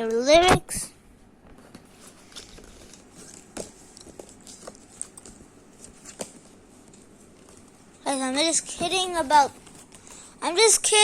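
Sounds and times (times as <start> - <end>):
booklet rustling: 1.6 - 10.3.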